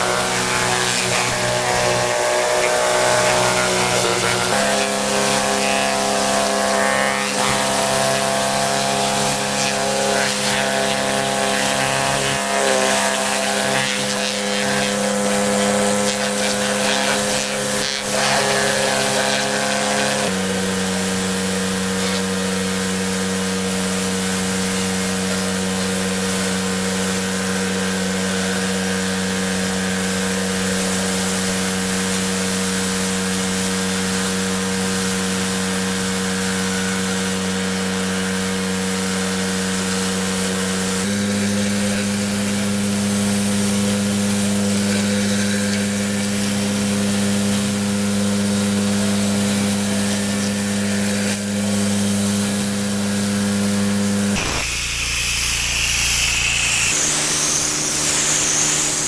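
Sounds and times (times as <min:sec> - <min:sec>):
pressure washer motor humming: 0:00.0 - 0:59.0
water jet hissing: 0:39.6 - 0:59.0.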